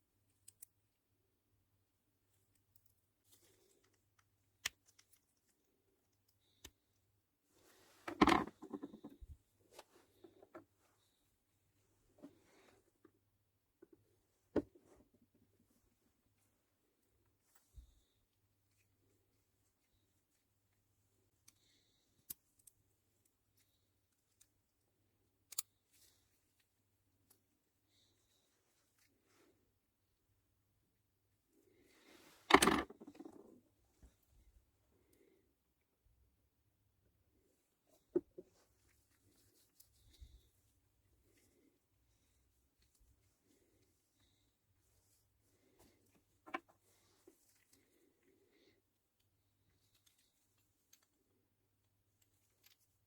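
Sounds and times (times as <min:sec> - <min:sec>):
small parts clicking: 0:03.8 - 0:05.5
tools clattering: 0:32.5 - 0:33.2.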